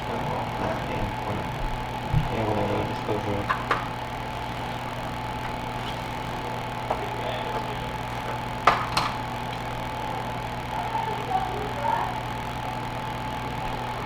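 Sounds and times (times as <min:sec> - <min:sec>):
steady background hum: 0:00.0 - 0:14.0
kitchen clicks: 0:08.3 - 0:09.3.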